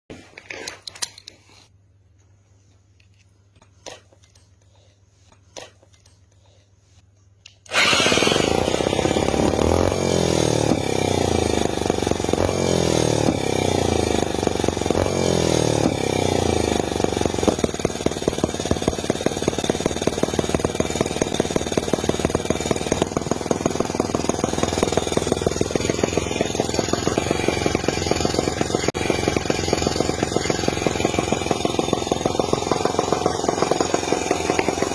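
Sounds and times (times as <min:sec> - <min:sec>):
model engine buzzing: 0:07.7 - 0:34.9.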